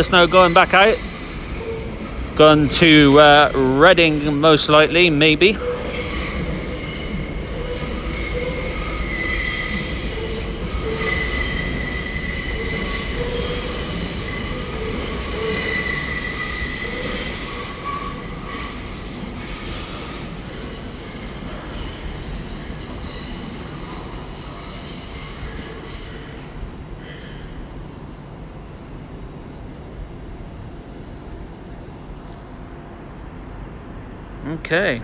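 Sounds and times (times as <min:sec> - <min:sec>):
train wheels squealing: 0:00.0 - 0:27.7
train rumble: 0:00.0 - 0:35.0.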